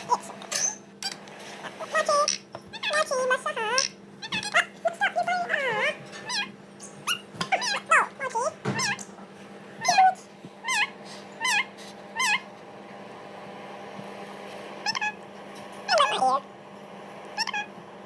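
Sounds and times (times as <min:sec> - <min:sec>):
animal cries with wavering pitch: 0:09.8 - 0:12.5, 0:14.8 - 0:15.2, 0:15.9 - 0:16.4, 0:17.4 - 0:17.8.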